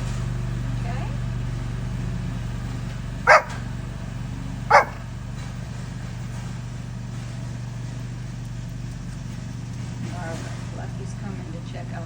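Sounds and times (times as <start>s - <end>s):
small dog barking: 3.3s - 3.6s, 4.7s - 5.1s.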